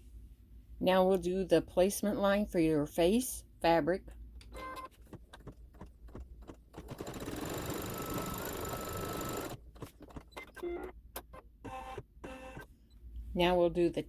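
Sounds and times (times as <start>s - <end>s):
embroidery machine stitching: 6.1s - 10.6s.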